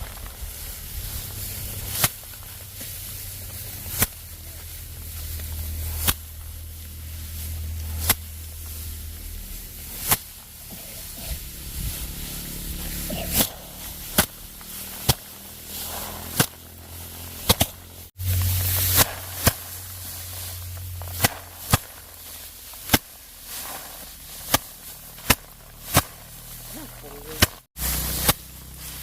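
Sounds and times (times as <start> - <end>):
steady low hum: 0.0 - 29.0
sharp striking impacts: 11.4 - 26.5.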